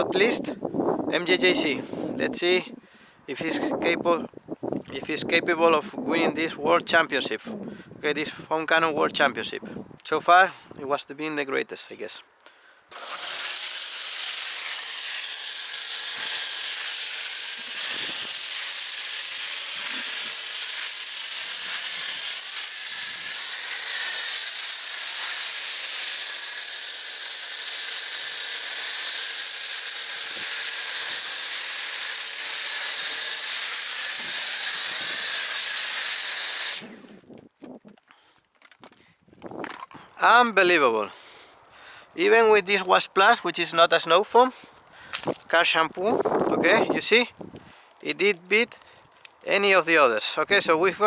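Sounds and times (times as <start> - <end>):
foam jet hissing: 12.9 - 37.1.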